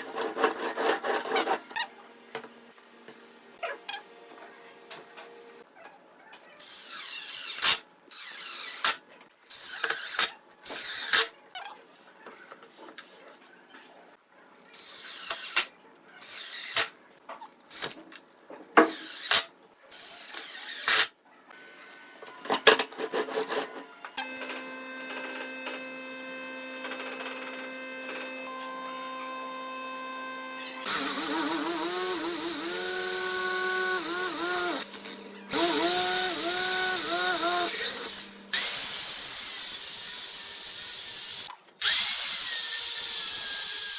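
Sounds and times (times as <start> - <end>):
power drill drilling wood: 30.6 - 43.9.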